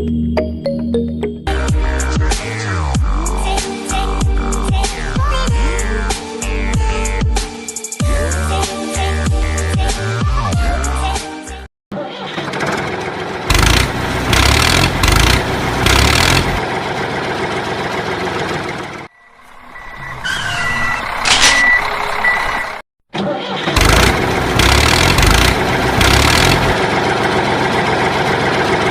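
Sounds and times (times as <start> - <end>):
tractor engine running: 12.2 - 20.3, 20.9 - 22.8, 23.7 - 28.9.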